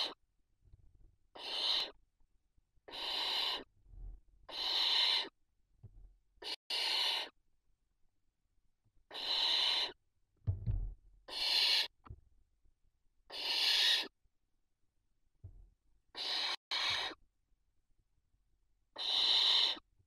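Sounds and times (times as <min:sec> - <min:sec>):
owl chicks rasping hiss calls: 0:01.4 - 0:02.0, 0:02.9 - 0:03.7, 0:04.5 - 0:05.4, 0:06.4 - 0:07.4, 0:09.1 - 0:10.0, 0:11.3 - 0:12.0, 0:13.3 - 0:14.2, 0:16.1 - 0:17.2, 0:19.0 - 0:19.9
low thump: 0:10.5 - 0:11.0.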